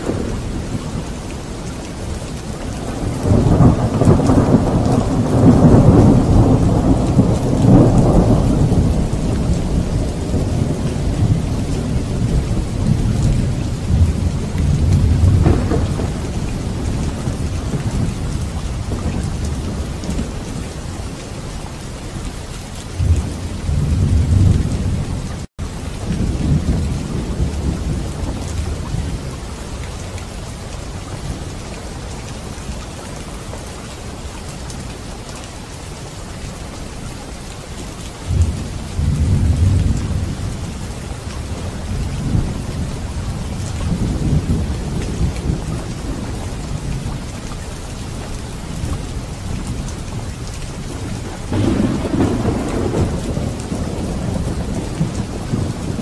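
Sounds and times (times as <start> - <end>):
rolling thunder: 0.0 - 1.3, 2.6 - 20.7, 22.9 - 29.4, 38.3 - 47.2, 48.6 - 56.0
heavy rain hissing: 0.0 - 56.0.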